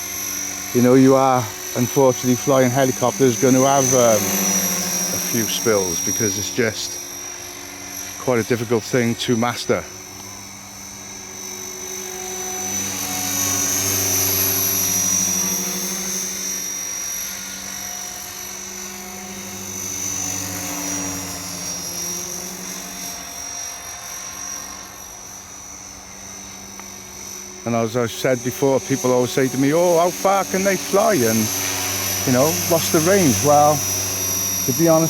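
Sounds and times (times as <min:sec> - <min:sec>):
helicopter rotor drone: 0:00.0 - 0:35.0
high motor whine: 0:00.0 - 0:35.0.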